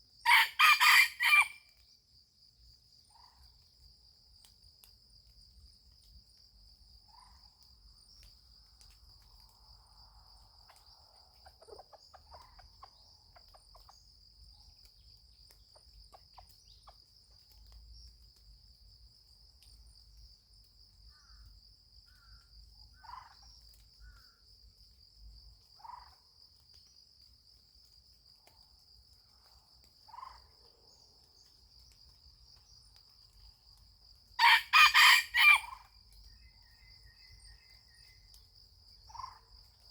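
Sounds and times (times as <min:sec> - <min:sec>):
insects droning: 0:00.0 - 0:39.9
fowl calls: 0:00.3 - 0:01.6, 0:34.4 - 0:35.8.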